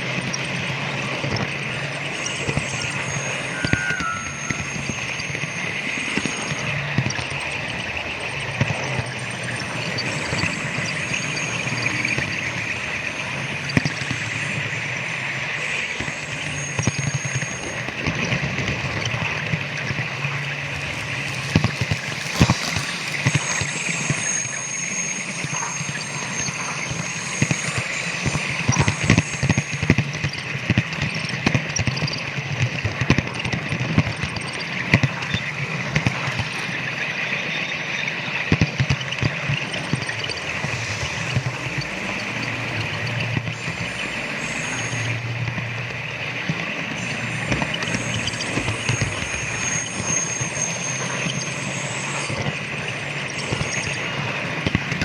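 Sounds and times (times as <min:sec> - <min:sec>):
faint high tones: 0:01.5 - 0:18.1, 0:20.6 - 0:30.2
wheels clicking over rail joints: 0:20.3 - 0:24.5
model train motor whir: 0:20.6 - 0:30.8, 0:38.8 - 0:52.6.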